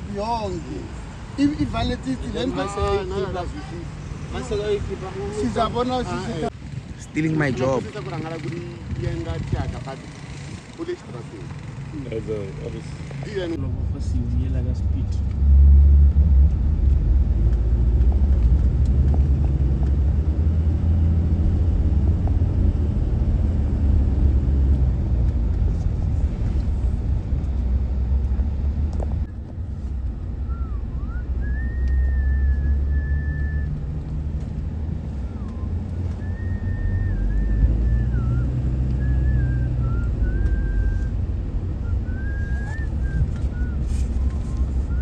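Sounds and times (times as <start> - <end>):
car engine and road noise: 0.0 - 45.0
thin wavering whistle: 30.4 - 33.8, 35.2 - 45.0.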